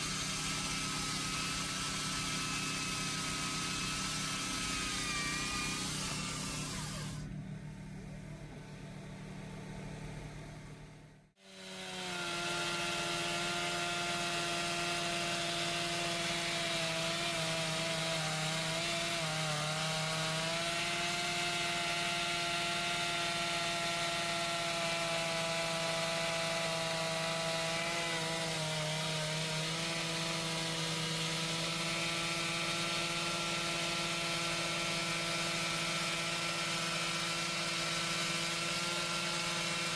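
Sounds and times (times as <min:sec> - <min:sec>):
chainsaw cutting wood: 0:00.0 - 0:07.3, 0:11.4 - 0:39.9.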